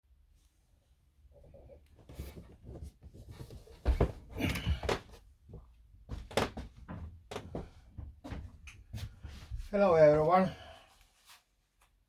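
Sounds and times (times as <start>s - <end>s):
knocks and thuds: 3.8s - 5.0s.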